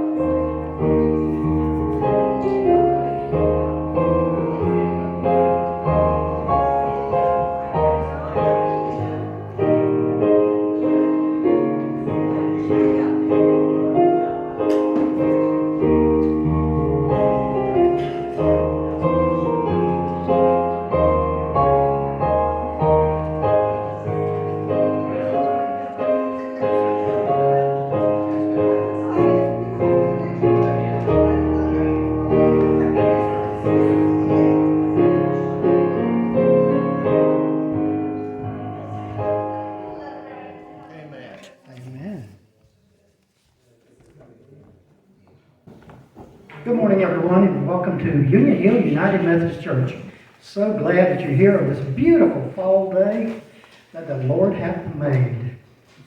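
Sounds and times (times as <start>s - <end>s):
slow piano music: 0.0s - 41.4s.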